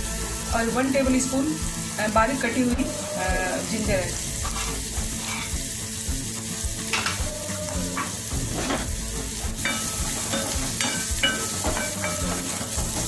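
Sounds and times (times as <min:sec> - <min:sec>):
garlic sizzling in oil: 0:00.0 - 0:13.0.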